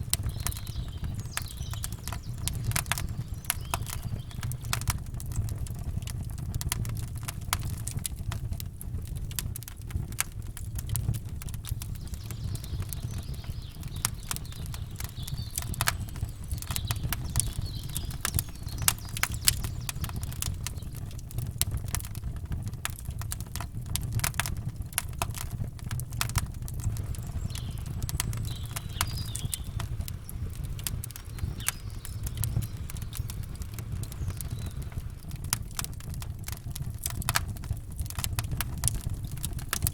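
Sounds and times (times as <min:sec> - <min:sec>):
campfire crackling and popping: 0:00.0 - 0:39.9
faint bird chirps: 0:00.2 - 0:04.8, 0:11.8 - 0:21.1, 0:26.9 - 0:35.5.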